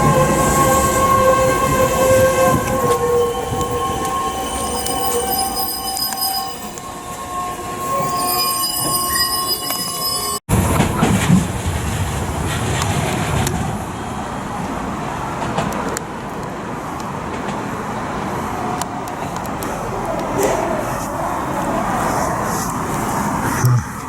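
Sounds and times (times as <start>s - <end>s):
train high squealing tones: 0.0s - 10.5s
train rumbling: 0.0s - 24.0s.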